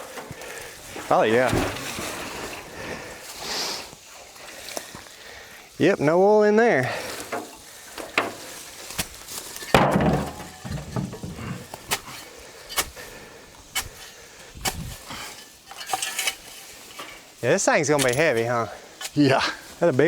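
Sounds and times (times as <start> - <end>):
clattering thud: 9.7 - 11.6.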